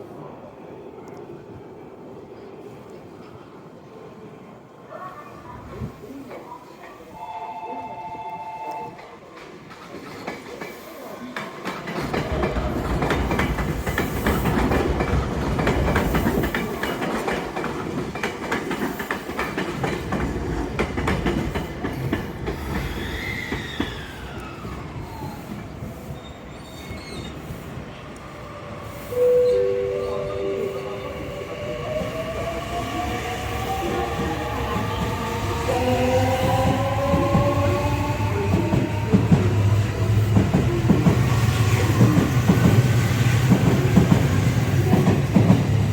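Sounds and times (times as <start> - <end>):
train wheels clattering over rail joints: 11.4 - 22.9
short two-note tone: 29.2 - 31.3.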